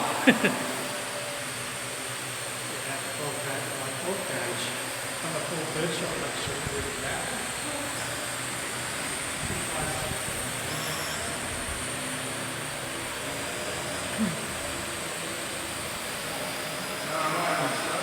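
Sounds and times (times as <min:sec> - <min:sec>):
drone propellers whirring: 0:00.0 - 0:18.0.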